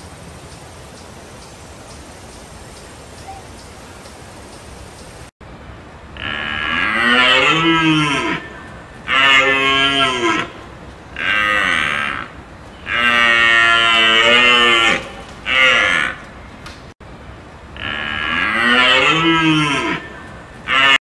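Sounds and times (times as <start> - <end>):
large animal mooing: 6.2 - 10.6, 11.2 - 16.2, 17.8 - 21.0.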